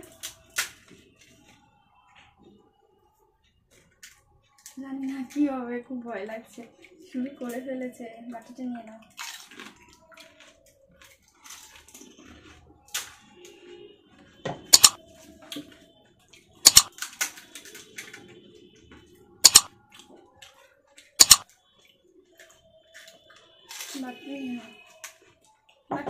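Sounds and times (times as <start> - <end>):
handling sounds: 14.8 - 15.0, 16.7 - 16.9, 19.4 - 19.7, 21.2 - 21.4.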